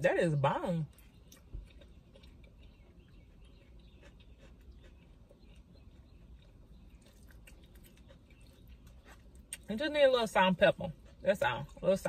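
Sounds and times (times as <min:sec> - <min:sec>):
soft chewing clicks: 0:00.8 - 0:09.9.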